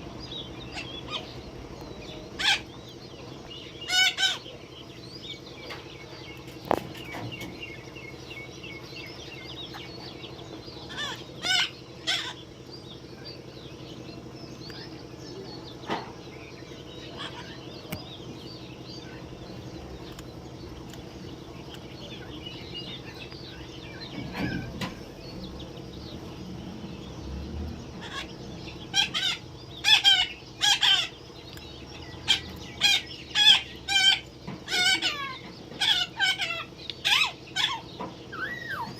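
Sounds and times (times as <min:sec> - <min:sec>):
parrots squawking: 0:00.7 - 0:04.6, 0:10.7 - 0:12.5, 0:17.0 - 0:17.8, 0:22.0 - 0:25.1, 0:27.9 - 0:31.2, 0:32.2 - 0:38.9.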